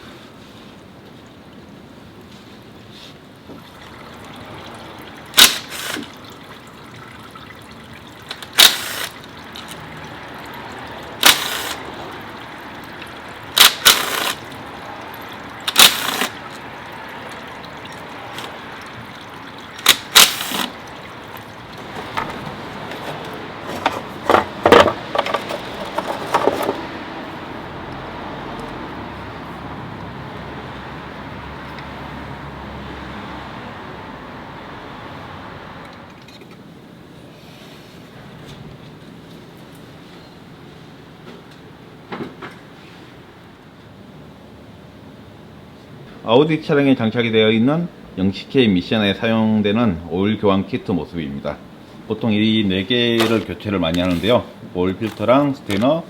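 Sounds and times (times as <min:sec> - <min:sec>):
fluid trickling into a pan: 0:03.3 - 0:05.4, 0:06.0 - 0:11.2, 0:11.8 - 0:13.6, 0:14.4 - 0:15.7, 0:16.3 - 0:19.9, 0:20.7 - 0:23.6
tools clacking on metal: 0:21.8 - 0:26.9, 0:53.2 - 0:54.3, 0:55.0 - 0:56.0.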